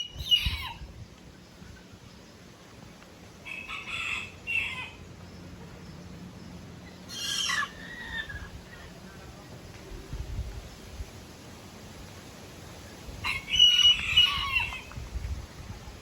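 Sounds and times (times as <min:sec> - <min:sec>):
rooster crowing: 0:03.4 - 0:05.0, 0:13.2 - 0:14.9.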